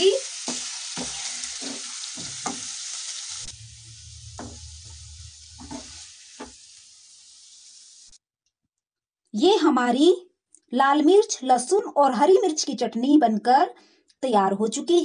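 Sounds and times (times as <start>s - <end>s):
chutney sizzling in a wok: 0.0s - 8.2s
wooden spatula scraping a wok: 0.4s - 8.1s.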